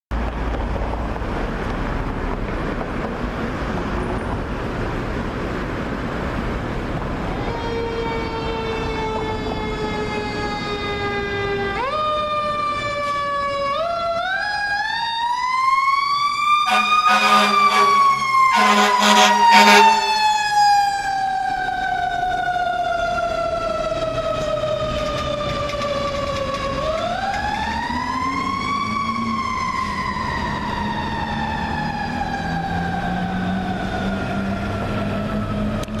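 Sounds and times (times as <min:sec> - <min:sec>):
mechanical siren wailing: 0:07.3 - 0:36.0
air horn blasts: 0:16.7 - 0:20.2.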